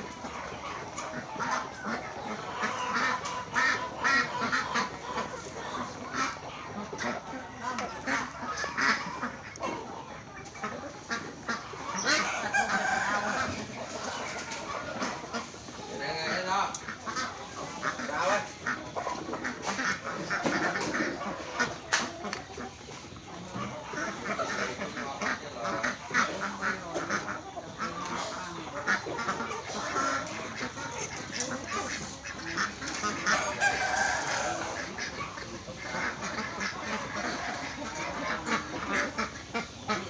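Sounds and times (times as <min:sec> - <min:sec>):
poultry and ducks calling: 0:00.0 - 0:40.0.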